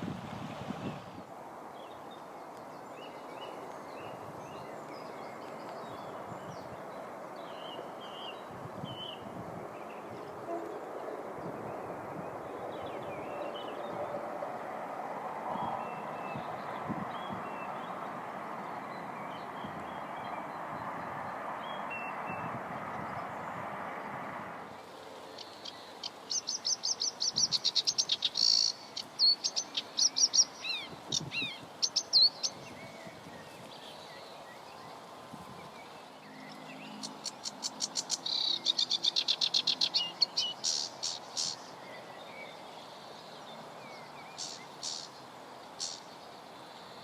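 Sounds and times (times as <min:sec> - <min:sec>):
steady rushing noise: 0:00.0 - 0:01.9
songbird trilling and chirping: 0:25.4 - 0:35.0, 0:35.7 - 0:46.2.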